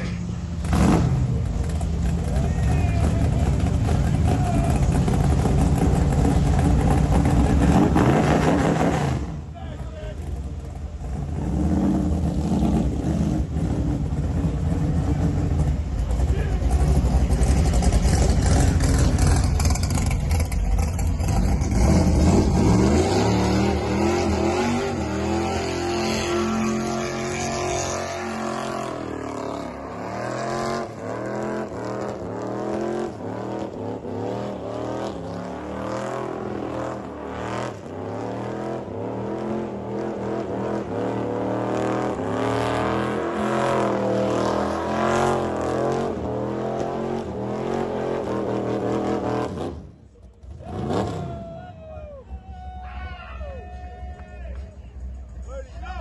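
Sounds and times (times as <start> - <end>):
car engine revving hard: 4.9 - 9.4, 21.1 - 49.9.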